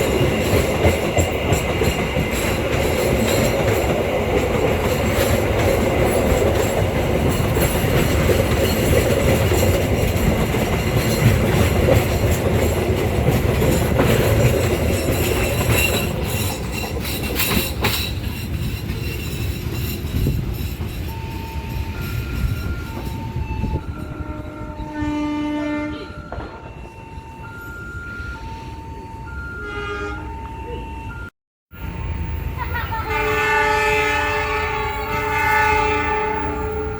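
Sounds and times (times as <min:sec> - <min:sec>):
train wheels rumbling and clicking: 0:00.0 - 0:24.6
short horn blast: 0:33.0 - 0:36.9.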